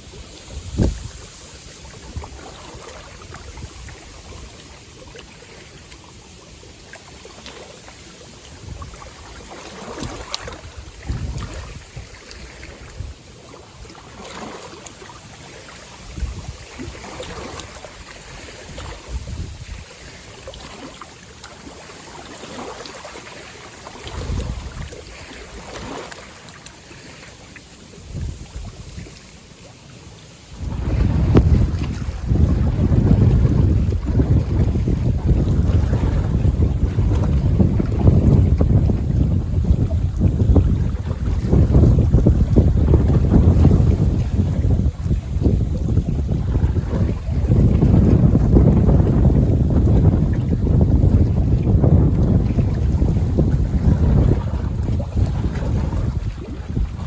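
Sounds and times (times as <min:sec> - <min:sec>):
wind buffeting microphone: 0:00.0 - 0:04.6, 0:08.5 - 0:13.2, 0:16.0 - 0:20.8, 0:24.0 - 0:26.0, 0:28.0 - 0:29.1, 0:30.5 - 0:57.0
waves splashing on shore: 0:00.0 - 0:57.0.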